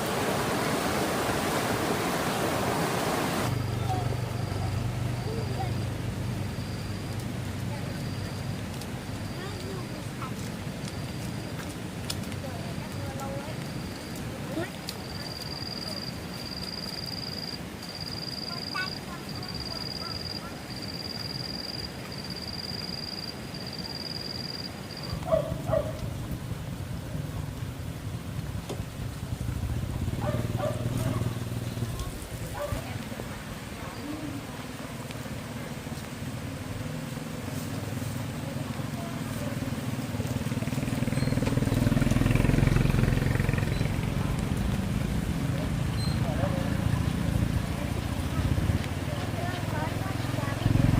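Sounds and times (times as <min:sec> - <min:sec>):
insect trilling: 0:13.6 - 0:25.3
small engine running: 0:40.0 - 0:44.3.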